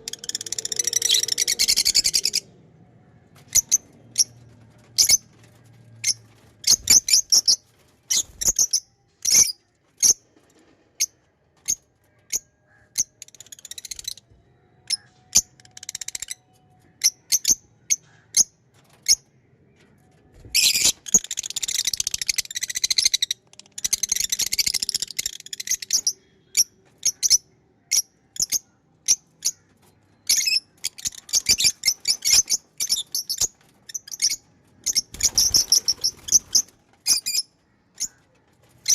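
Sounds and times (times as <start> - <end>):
lovebirds chirping: 0.0 - 2.5, 3.2 - 5.2, 20.6 - 38.9.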